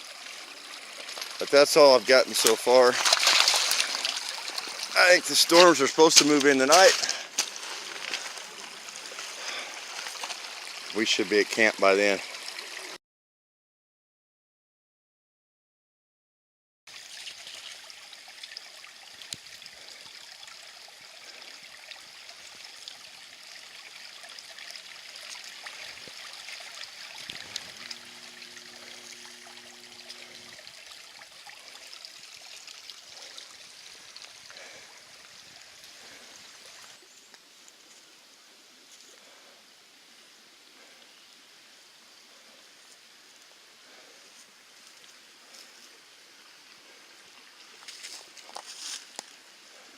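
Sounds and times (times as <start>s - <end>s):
small stream trickling: 0.0s - 13.0s, 16.9s - 49.9s
faint low hum: 27.4s - 30.8s.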